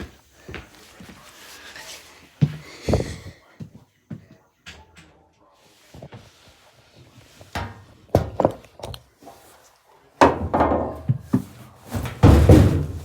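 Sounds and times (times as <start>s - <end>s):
loud crash with clattering: 12.0s - 13.0s
hard blows striking an appliance: 12.2s - 13.0s.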